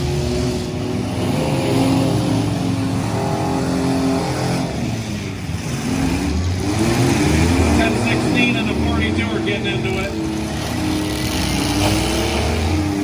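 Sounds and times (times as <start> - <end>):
truck engines revving: 0.0 - 13.0.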